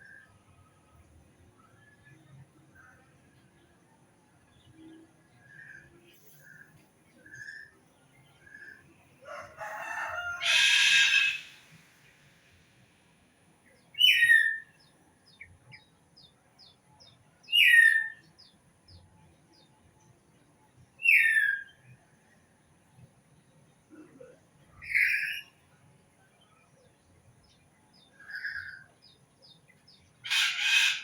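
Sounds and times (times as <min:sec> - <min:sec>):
birds calling: 0:09.7 - 0:11.8.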